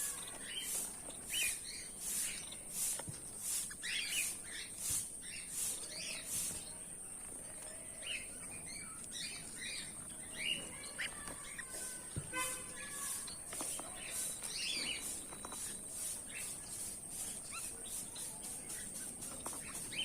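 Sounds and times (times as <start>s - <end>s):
steady high hiss: 0.0s - 7.1s, 11.4s - 20.0s
birds chirping and twittering: 0.0s - 20.0s.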